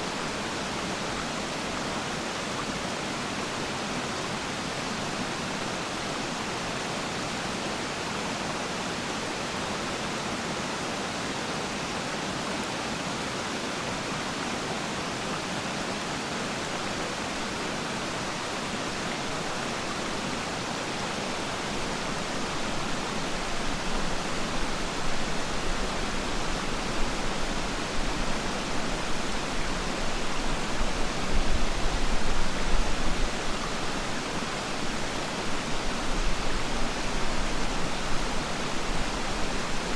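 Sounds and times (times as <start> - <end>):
waterfall rushing: 16.4 - 39.9.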